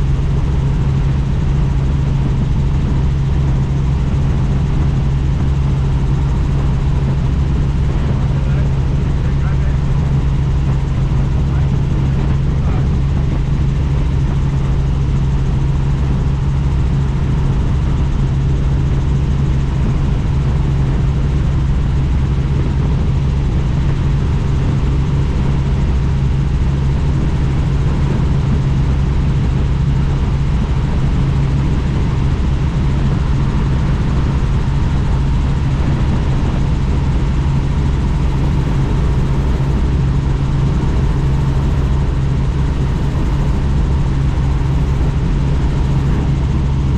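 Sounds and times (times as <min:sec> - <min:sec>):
helicopter rotor and engine noise: 0:00.0 - 0:46.9.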